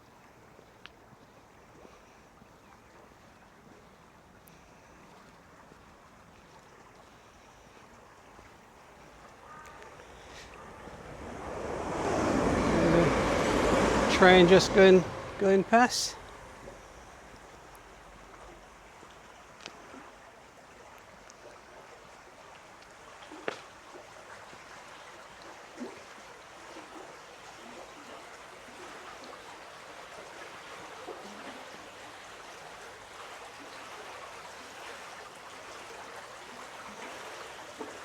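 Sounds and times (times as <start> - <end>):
stream flowing water: 0.0 - 38.0.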